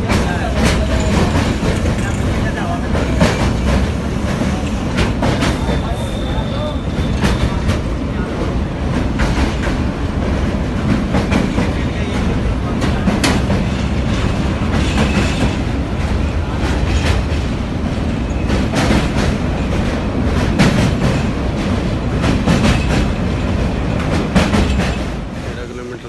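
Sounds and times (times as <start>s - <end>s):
train wheels rumbling: 0.0s - 26.0s
wheels clacking over rail joints: 0.0s - 26.0s.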